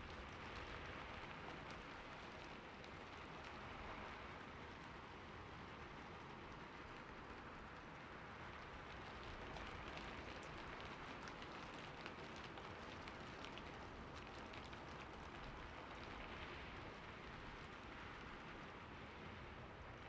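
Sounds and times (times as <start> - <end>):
rain falling on a roof: 0.0 - 20.0.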